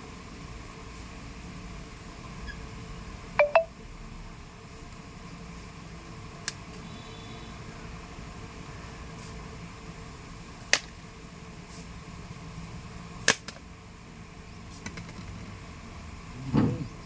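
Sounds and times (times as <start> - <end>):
short electronic beeps: 3.4 - 3.7.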